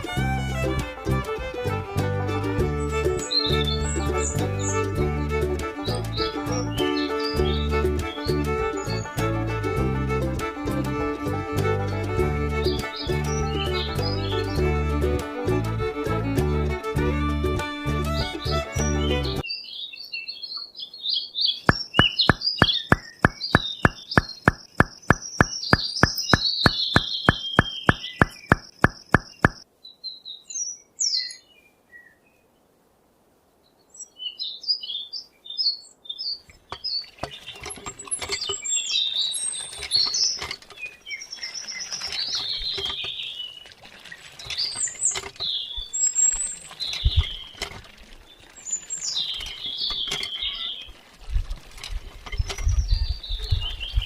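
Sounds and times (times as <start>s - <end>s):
regular ticking: 0.0s - 19.4s, 21.7s - 29.6s
small birds chirping: 2.8s - 9.3s, 12.4s - 15.1s, 17.2s - 32.5s, 33.6s - 51.4s, 52.3s - 54.0s.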